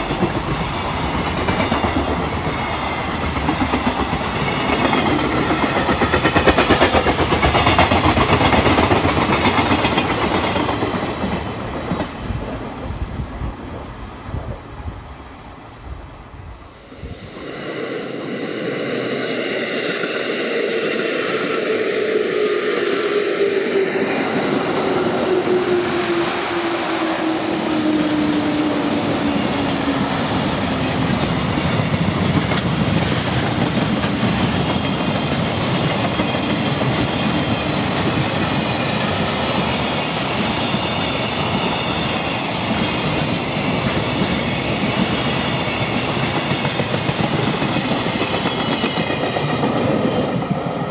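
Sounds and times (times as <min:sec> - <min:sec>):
train wheels rumbling on rails: 0:00.0 - 0:50.9
train whine falling in pitch: 0:16.5 - 0:33.6.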